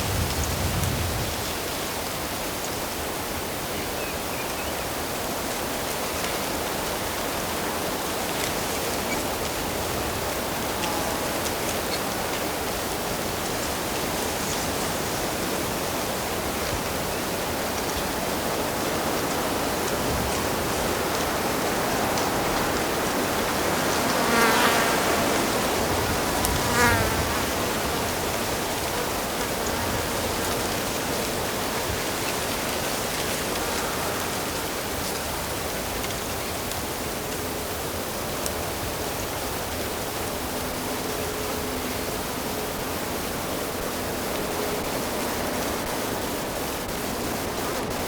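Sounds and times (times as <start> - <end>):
flying insect buzzing: 21.7 - 31.4.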